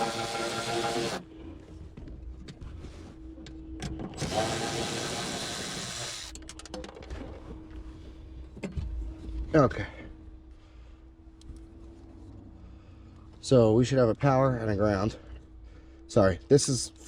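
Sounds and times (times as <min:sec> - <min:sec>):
cordless drill running: 0:00.0 - 0:01.2, 0:04.2 - 0:06.4.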